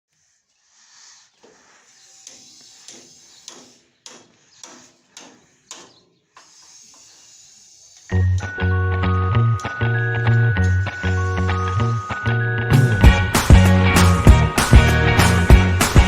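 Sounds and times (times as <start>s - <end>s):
steady hiss: 0.1s - 5.8s, 6.4s - 8.2s
music: 8.1s - 16.0s.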